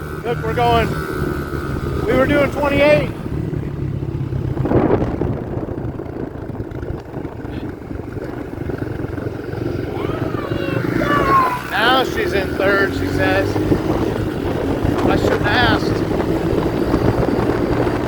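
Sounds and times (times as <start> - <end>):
dirt bike engine running: 0.0 - 18.0
wind and road noise: 0.0 - 18.0.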